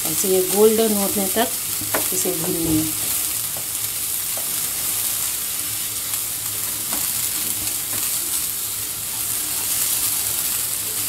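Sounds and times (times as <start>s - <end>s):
coconut hissing in a pan: 0.0s - 11.0s.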